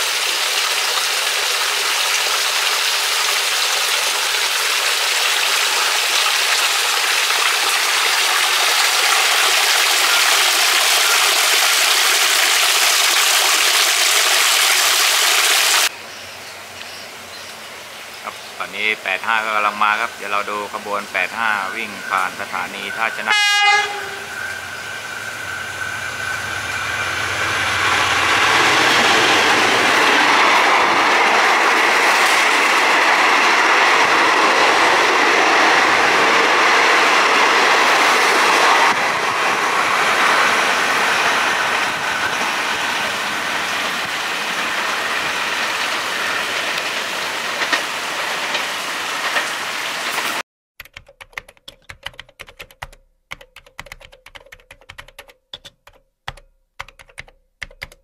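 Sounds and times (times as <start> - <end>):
train wheels rumbling on rails: 21.5 - 50.4
computer keyboard typing: 50.8 - 58.0.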